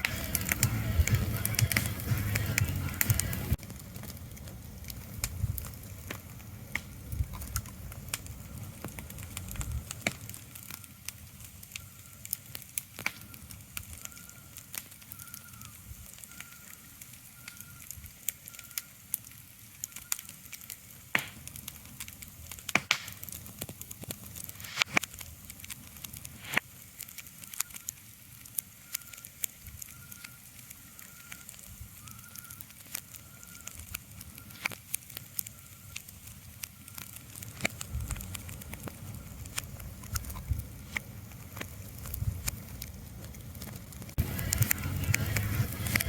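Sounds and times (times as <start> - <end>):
crackling pops and snaps: 0.0 - 46.0
low rumble: 41.8 - 46.0.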